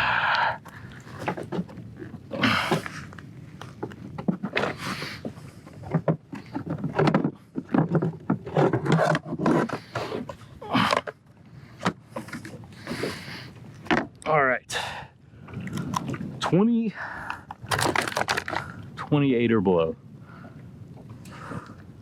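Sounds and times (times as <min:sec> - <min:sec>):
knocks scrapes and rustles: 0:05.8 - 0:10.4.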